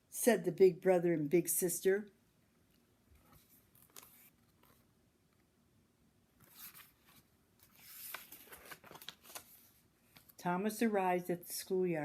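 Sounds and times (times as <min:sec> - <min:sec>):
book page turning: 0:03.2 - 0:04.9, 0:06.4 - 0:10.4.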